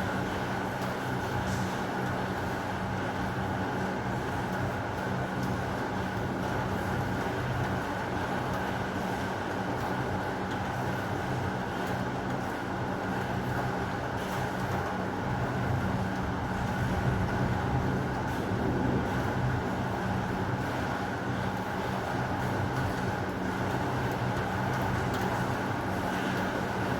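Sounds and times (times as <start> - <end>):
heavy rain: 15.3 - 26.9.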